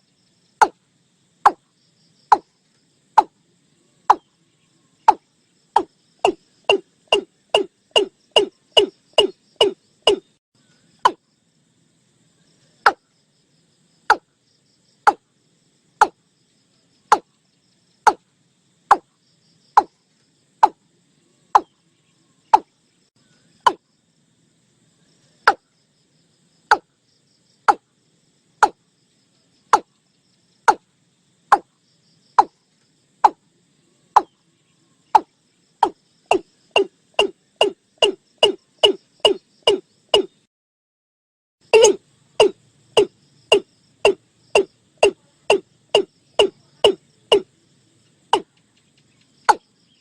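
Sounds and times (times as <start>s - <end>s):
bird calling sharp notes: 5.8s - 10.3s, 35.2s - 40.3s, 41.7s - 47.4s.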